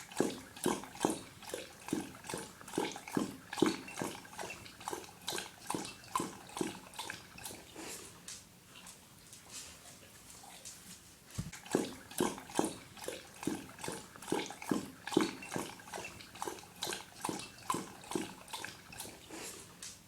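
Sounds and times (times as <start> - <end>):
dog lapping water: 0.0 - 10.1, 11.5 - 20.0.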